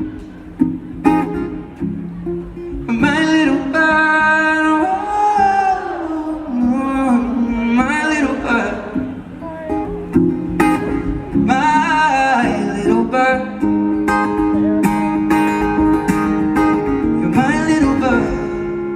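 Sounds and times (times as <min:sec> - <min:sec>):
acoustic guitar strumming: 0:00.0 - 0:18.9
person singing wordlessly: 0:02.9 - 0:09.9, 0:17.2 - 0:18.7.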